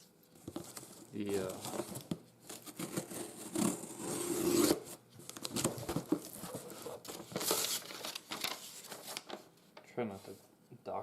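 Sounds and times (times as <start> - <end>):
crinkling and rustling: 0.3 - 3.7, 5.2 - 10.4.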